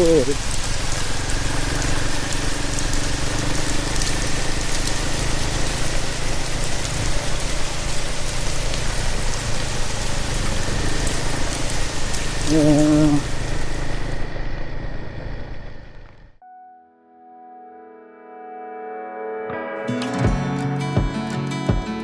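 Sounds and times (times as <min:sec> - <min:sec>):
raindrops ticking on microphone: 0:00.0 - 0:14.2
motorcycle engine running: 0:00.0 - 0:16.4, 0:20.1 - 0:22.0
rain hissing: 0:00.0 - 0:16.4.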